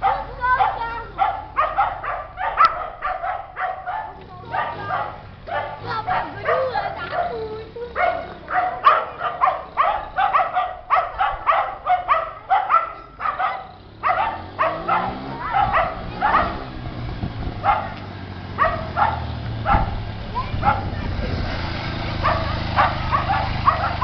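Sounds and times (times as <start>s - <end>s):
dog barking: 0.0s - 16.8s, 17.6s - 21.2s, 22.1s - 24.0s
engine running low: 0.0s - 24.0s.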